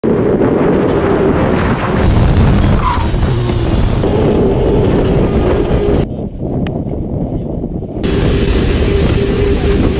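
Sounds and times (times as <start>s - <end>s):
wind rush over microphone: 0.0s - 9.9s
motorcycle engine running: 1.9s - 6.1s, 8.0s - 9.9s.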